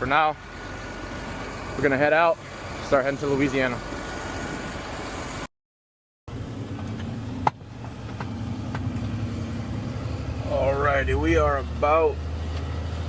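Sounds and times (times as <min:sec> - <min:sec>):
truck engine running: 0:00.0 - 0:05.5, 0:06.3 - 0:13.0.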